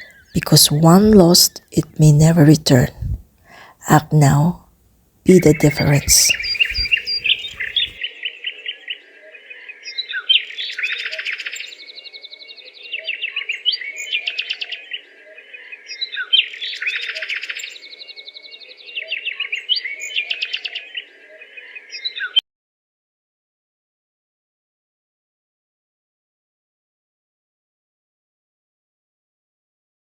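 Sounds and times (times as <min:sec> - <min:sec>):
bird chirps and trills: 0:05.8 - 0:07.9.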